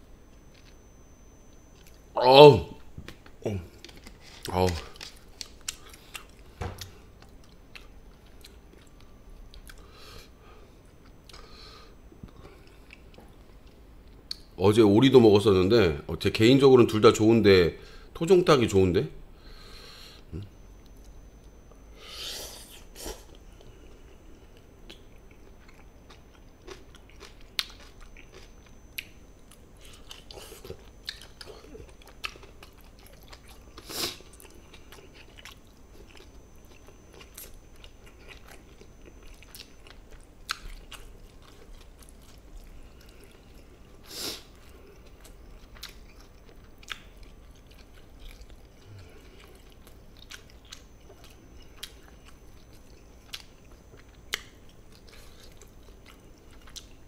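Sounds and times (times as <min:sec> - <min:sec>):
chewing and biting: 0:24.0 - 0:57.0.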